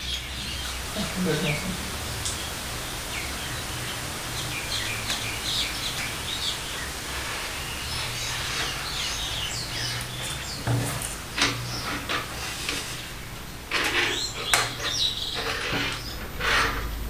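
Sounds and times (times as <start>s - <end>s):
birds chirping: 0.0s - 17.0s
steady hiss: 0.0s - 17.0s.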